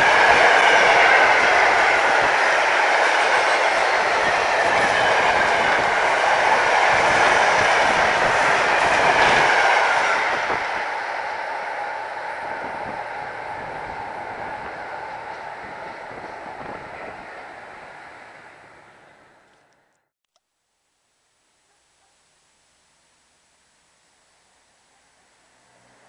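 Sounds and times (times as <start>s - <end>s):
train wheels on rails: 0.0s - 19.9s
electric train passing: 0.0s - 20.0s, 25.3s - 26.0s.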